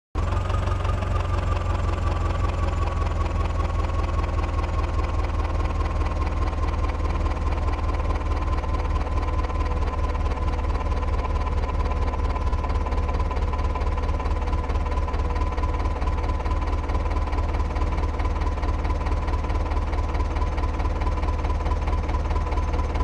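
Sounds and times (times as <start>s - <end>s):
diesel engine rumbling: 0.2s - 23.0s.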